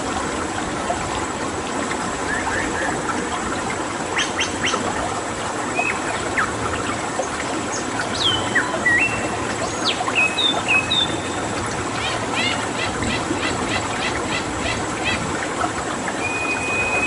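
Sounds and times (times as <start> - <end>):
flowing water: 0.0 - 17.0
birds whistling and calling: 2.3 - 3.0, 4.2 - 4.8, 5.7 - 6.9, 7.7 - 11.4, 16.1 - 17.0.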